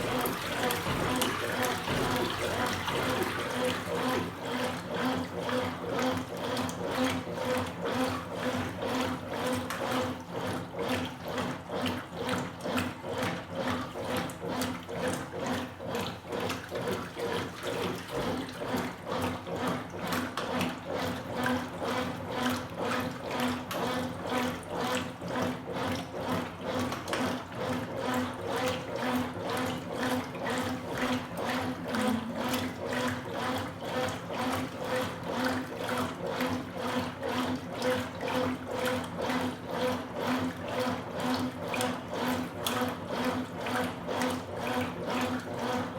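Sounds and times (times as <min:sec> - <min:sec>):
motor hum: 0:00.0 - 0:10.0, 0:29.6 - 0:36.6
washing machine agitator swishing: 0:00.0 - 0:45.9.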